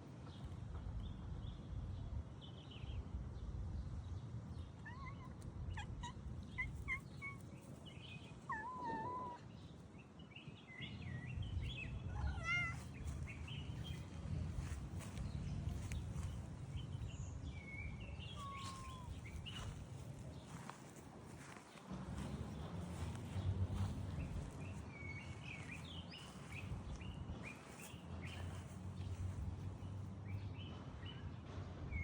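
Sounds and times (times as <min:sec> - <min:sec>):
cat chirping: 0:04.8 - 0:07.5, 0:18.3 - 0:19.4
cat trilling: 0:12.1 - 0:12.8
cat meowing: 0:12.1 - 0:12.9.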